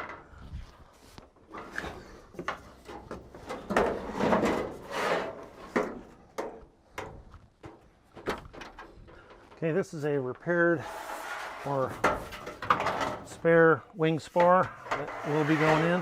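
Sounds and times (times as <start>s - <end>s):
scraping rustle: 0.3s - 6.1s, 8.4s - 13.6s, 14.2s - 16.0s
knocks and clunks: 1.5s - 9.8s, 11.9s - 13.5s.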